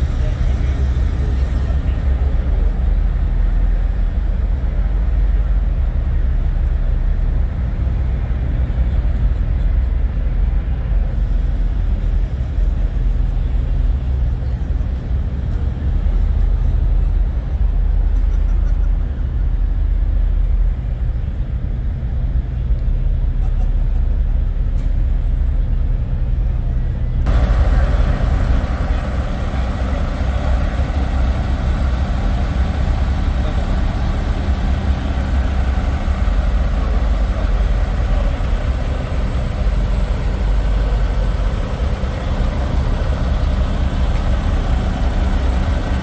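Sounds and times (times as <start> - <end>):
diesel truck engines idling: 0.0 - 46.0
faint crowd chatter: 0.0 - 46.0.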